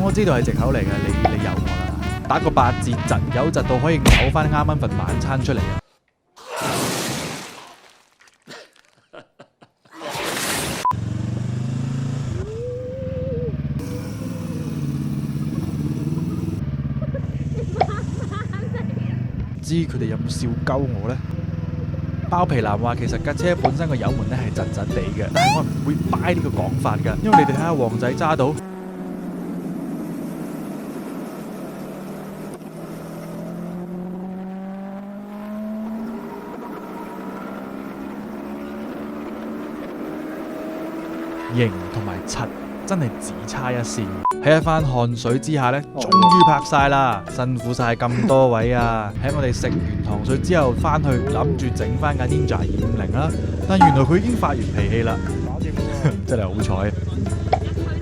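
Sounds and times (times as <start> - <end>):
motorcycle engine running: 13.5 - 19.3.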